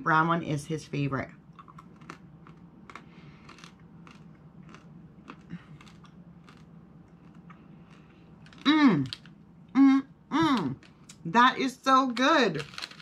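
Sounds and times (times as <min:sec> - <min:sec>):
coffee bean crunching: 0:01.6 - 0:09.4, 0:11.9 - 0:13.0.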